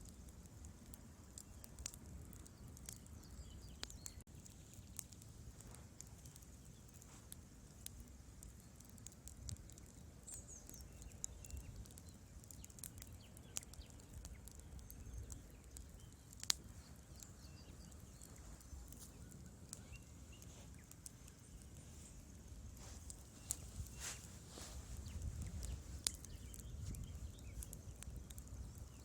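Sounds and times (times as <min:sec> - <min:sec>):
wood fire crackling and snapping: 0:00.0 - 0:29.0
faint low rumble: 0:14.2 - 0:29.0.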